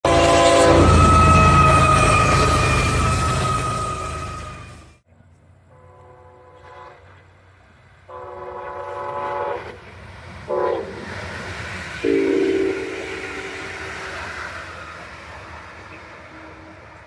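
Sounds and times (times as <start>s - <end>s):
train horn blasts: 0.0s - 4.7s, 5.7s - 7.3s, 8.1s - 9.8s, 10.5s - 11.1s, 12.0s - 14.2s
train rushing past: 0.0s - 5.0s, 6.5s - 17.0s.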